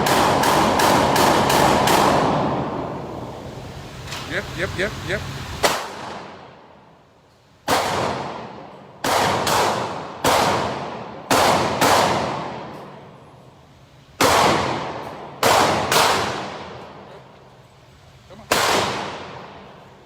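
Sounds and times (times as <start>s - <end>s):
echoing gunshots: 0.0s - 3.1s, 5.6s - 6.6s, 7.6s - 13.0s, 14.2s - 17.1s, 18.5s - 19.8s.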